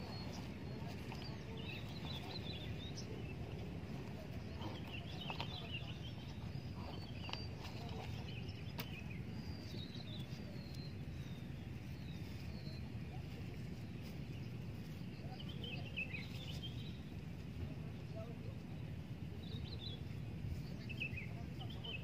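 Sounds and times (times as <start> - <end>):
birds chirping: 0.0 - 22.0
steady low rumble: 0.0 - 22.0.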